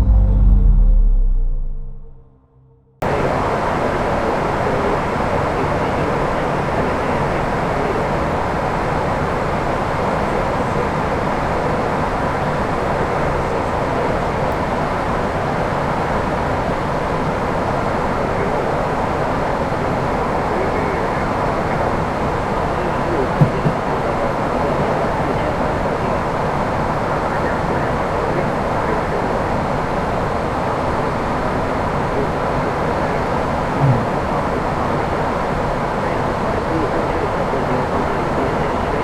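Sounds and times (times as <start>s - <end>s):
aircraft cockpit rushing noise: 22.8s - 25.5s.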